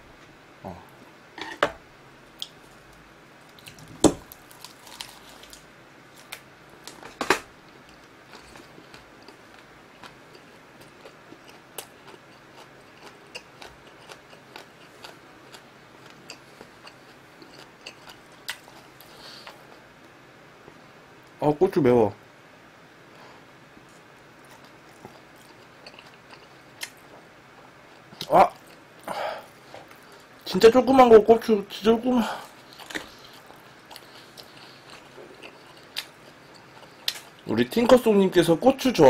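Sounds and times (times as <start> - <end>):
crunchy bites: 3.5 - 7.5
soft wet chewing: 7.6 - 20.2, 23.7 - 30.5, 32.4 - 38.0.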